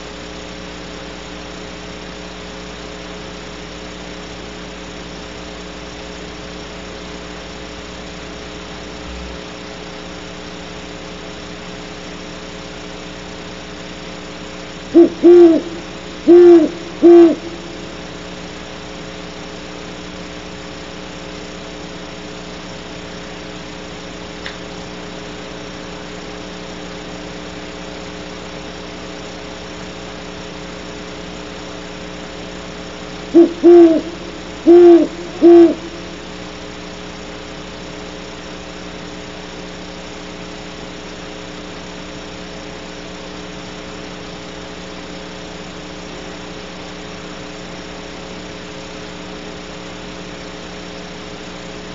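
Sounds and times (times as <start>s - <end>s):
electrical hum: 0.0s - 51.9s
owl hooting: 14.9s - 18.1s, 33.2s - 36.4s.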